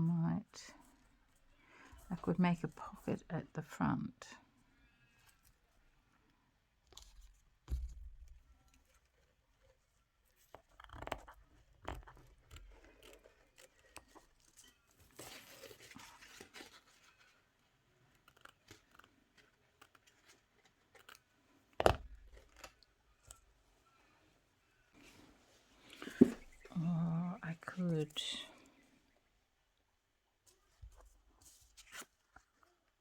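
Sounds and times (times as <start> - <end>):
paper rustling and tearing: 12.7 - 17.5.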